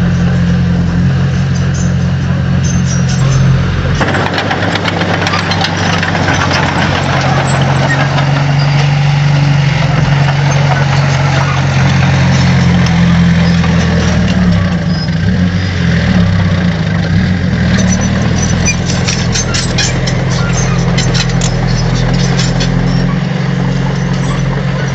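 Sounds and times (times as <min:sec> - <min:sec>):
heavy diesel engine running: 0:00.0 - 0:24.9
sharp clicks and knocks: 0:03.1 - 0:14.8, 0:17.7 - 0:23.1.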